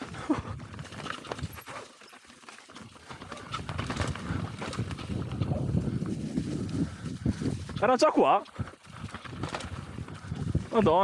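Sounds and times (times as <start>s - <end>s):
tyre rumble: 0.0s - 6.6s
mountain bike knocks and rattles: 0.7s - 5.5s
wind noise: 3.0s - 11.0s.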